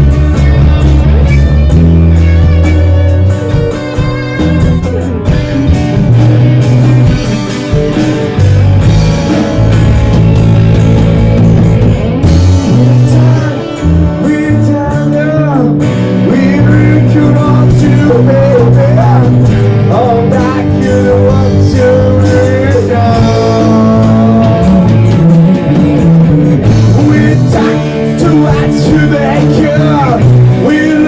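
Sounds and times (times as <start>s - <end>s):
bass: 0.0s - 31.0s
drums: 0.0s - 31.0s
guitar: 0.0s - 31.0s
person singing: 12.6s - 31.0s.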